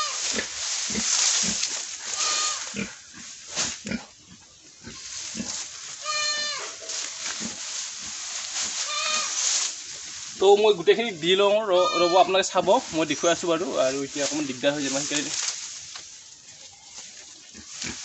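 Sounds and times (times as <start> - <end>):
pigs grunting: 0.9 - 5.6
pig squealing: 2.1 - 3.0, 6.0 - 6.8, 8.8 - 9.4, 11.7 - 12.7.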